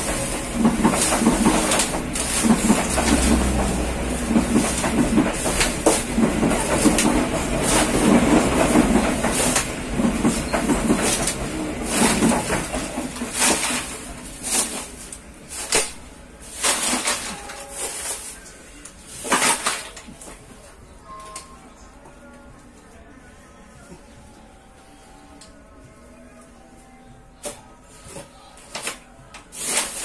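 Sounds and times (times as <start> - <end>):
train wheels rumbling and clacking: 0.0 - 18.2.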